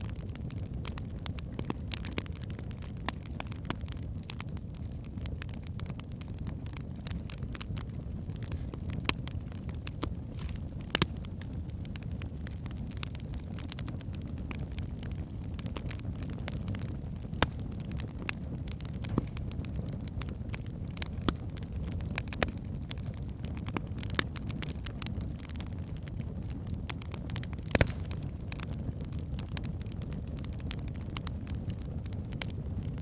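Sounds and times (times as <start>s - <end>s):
fire crackling and popping: 0.0s - 33.0s
flames rumbling: 0.0s - 33.0s.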